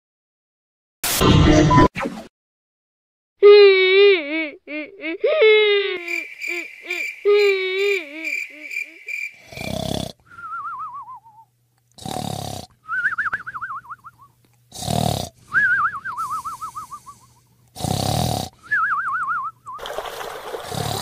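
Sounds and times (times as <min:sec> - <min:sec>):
cartoon snoring and whistling: 0:06.0 - 0:14.1, 0:14.7 - 0:19.5, 0:20.7 - 0:21.0.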